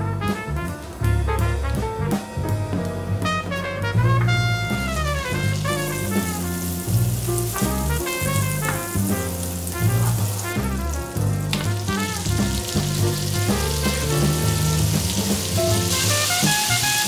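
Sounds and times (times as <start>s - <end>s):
background music: 0.0s - 17.0s
butter sizzling in a frying pan: 5.1s - 17.0s
chicken dropped into pan: 11.5s - 11.8s.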